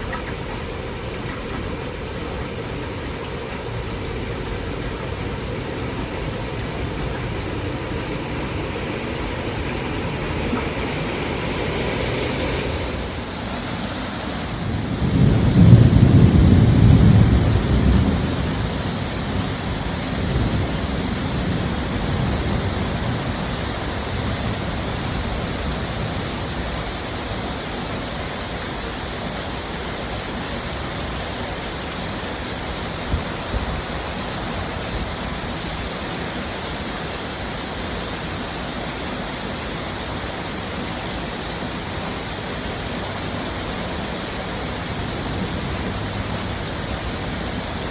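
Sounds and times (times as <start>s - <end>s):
thunder rumbling: 0.0s - 26.5s
heavy rain pouring: 0.0s - 47.9s.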